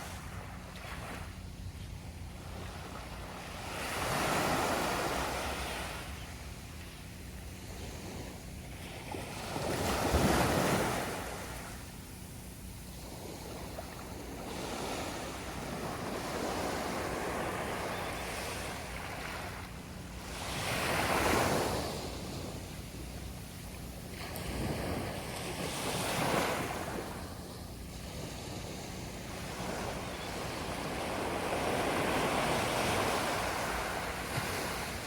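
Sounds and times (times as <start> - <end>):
sea waves washing onto beach: 13.1 - 35.0.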